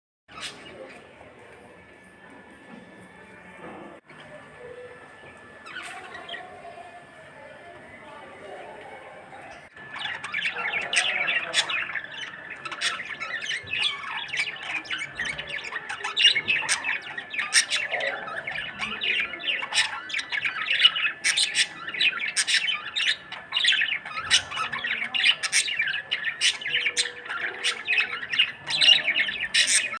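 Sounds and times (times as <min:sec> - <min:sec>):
budgerigar chattering and warbling: 0:09.8 - 0:30.0.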